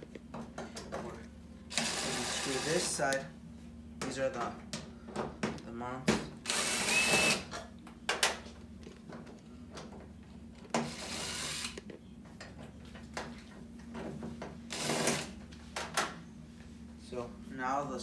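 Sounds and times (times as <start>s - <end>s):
power driver removing screws: 6.5s - 7.5s.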